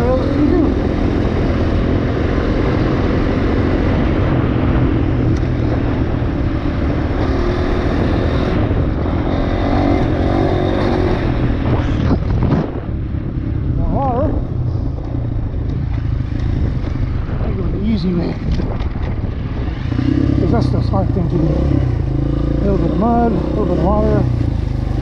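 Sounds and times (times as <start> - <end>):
dirt bike engine running: 0.0 - 25.0.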